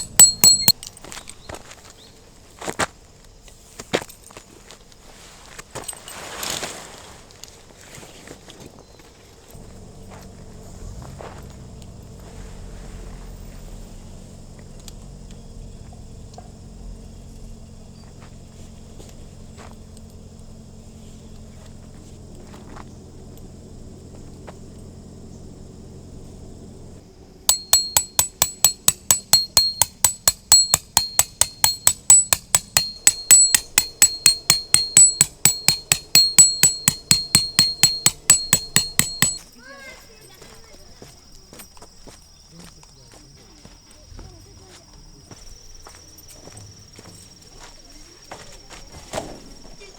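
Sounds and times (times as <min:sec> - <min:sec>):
hammer striking metal tent peg: 0:00.0 - 0:00.8, 0:27.5 - 0:39.4
low background hum: 0:08.3 - 0:49.9.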